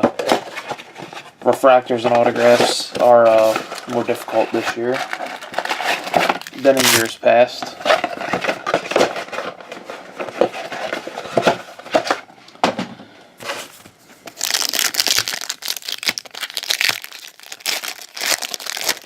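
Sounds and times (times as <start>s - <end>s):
wrappers crinkling and tearing: 2.4s - 7.2s, 14.3s - 19.0s.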